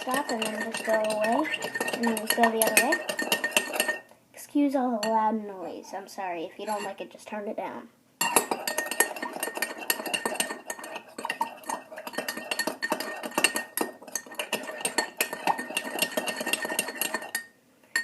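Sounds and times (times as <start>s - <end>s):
metal spoon clinking in a cup: 0.0s - 4.0s, 6.6s - 6.9s, 8.2s - 18.0s.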